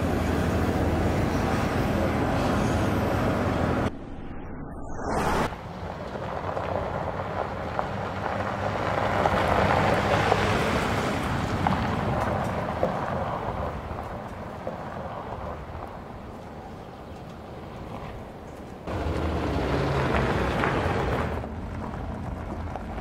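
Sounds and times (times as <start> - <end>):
diesel engine driving past: 18.9 - 23.0.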